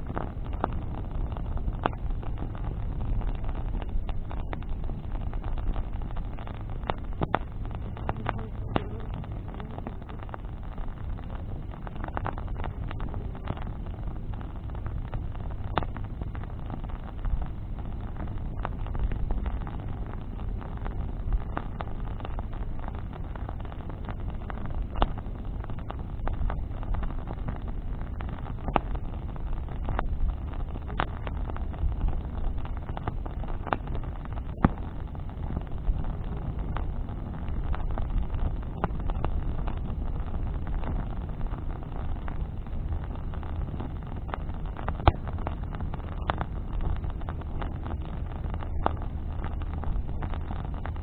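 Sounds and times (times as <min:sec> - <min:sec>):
bonfire crackling and popping: 0:00.0 - 0:51.0
low rumble: 0:00.0 - 0:51.0.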